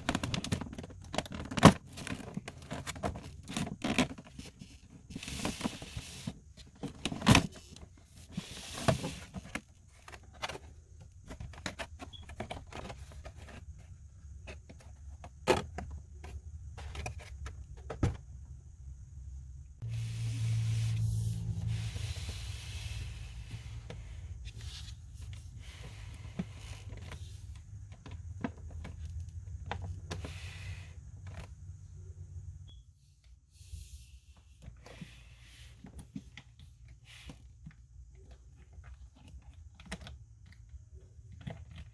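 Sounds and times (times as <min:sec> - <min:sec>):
packaging clicks and rustles: 0:00.0 - 0:17.6, 0:37.6 - 0:41.9
steady low hum: 0:13.1 - 0:30.1.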